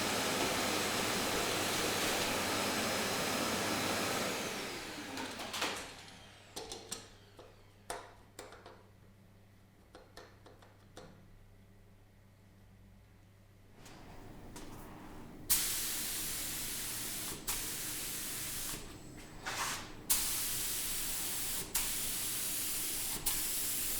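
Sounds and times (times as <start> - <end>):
electric machine running and spinning down: 0.0 - 7.8.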